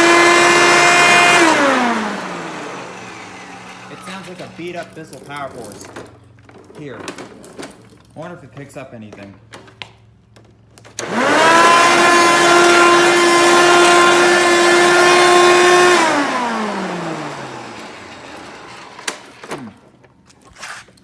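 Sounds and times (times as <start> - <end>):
vacuum cleaner high whine: 0.0 - 4.9, 11.0 - 19.9.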